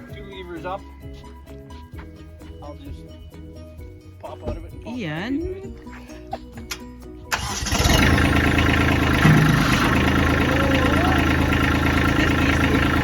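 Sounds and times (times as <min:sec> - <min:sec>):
engine idling: 0:07.3 - 0:13.0.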